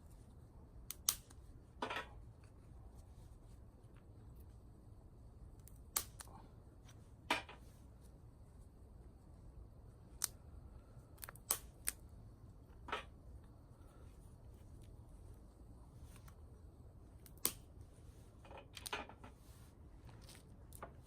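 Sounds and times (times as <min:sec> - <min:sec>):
dry twigs snapping: 0:00.9 - 0:01.4, 0:05.6 - 0:06.3, 0:11.1 - 0:12.0, 0:17.2 - 0:17.7.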